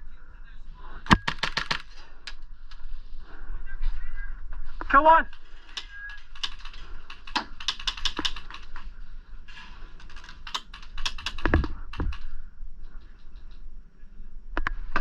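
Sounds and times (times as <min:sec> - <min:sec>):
airsoft guns firing clicks: 0:01.1 - 0:02.0, 0:05.3 - 0:08.8, 0:10.1 - 0:12.3.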